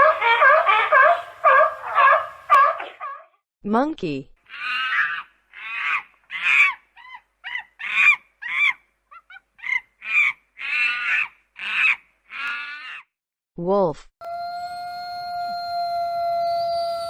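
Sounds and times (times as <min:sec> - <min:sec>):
monkey calling shrilly: 0:00.0 - 0:03.3, 0:04.5 - 0:13.1.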